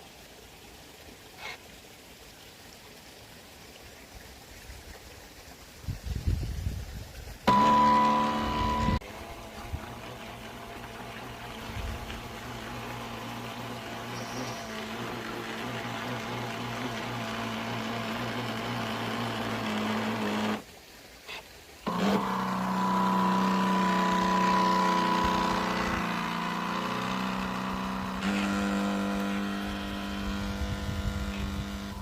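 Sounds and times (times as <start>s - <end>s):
small motor whining: 7.4s - 20.7s, 21.3s - 32.0s.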